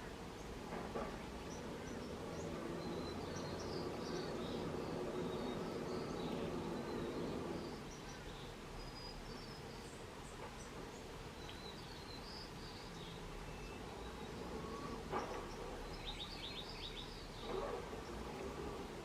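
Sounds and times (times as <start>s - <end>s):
faint high bird chirps: 0.0s - 18.8s.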